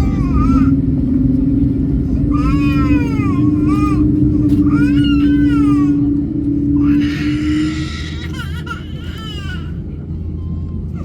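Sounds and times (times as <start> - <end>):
baby crying: 0.0 - 0.8, 2.3 - 6.1, 6.8 - 9.8
airliner engines rumbling: 0.0 - 11.0.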